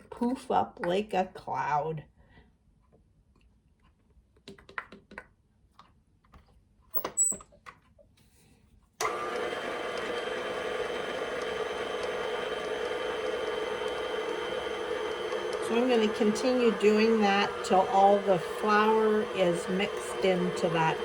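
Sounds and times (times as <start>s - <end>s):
food processor running: 9.0s - 21.0s.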